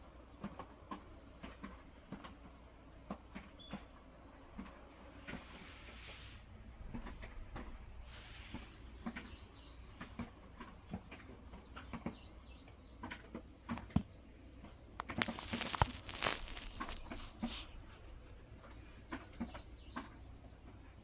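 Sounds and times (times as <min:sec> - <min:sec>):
small bird chirping: 0:08.5 - 0:11.0, 0:11.6 - 0:13.1, 0:15.0 - 0:17.6, 0:18.7 - 0:20.4
rustling with sharp clicks: 0:13.0 - 0:20.1.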